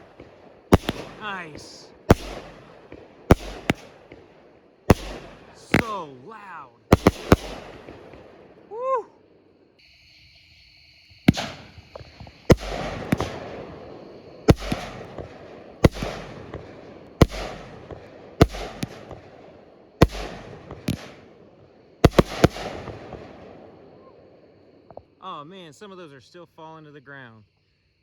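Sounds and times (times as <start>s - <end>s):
firework shots banging: 0.0s - 8.7s, 11.2s - 24.0s.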